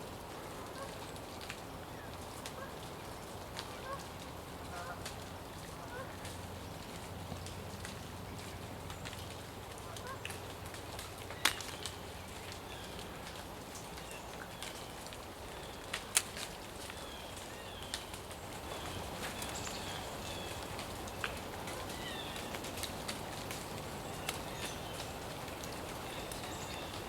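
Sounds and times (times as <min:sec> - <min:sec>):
small birds chirping: 0:16.9 - 0:27.0.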